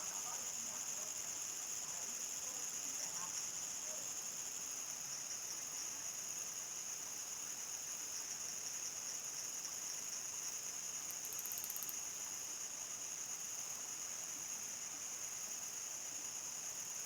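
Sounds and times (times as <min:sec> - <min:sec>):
crickets trilling: 0:08.2 - 0:17.0
fast pulsed insect trill: 0:11.0 - 0:12.1.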